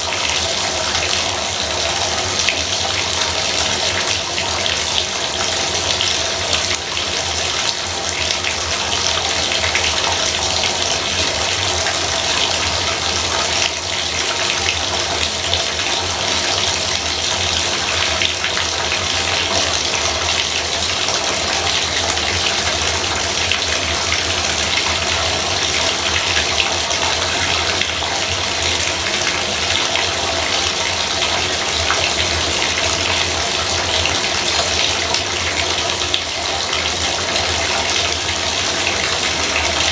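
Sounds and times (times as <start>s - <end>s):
faucet water splashing into tub: 0.0s - 39.9s.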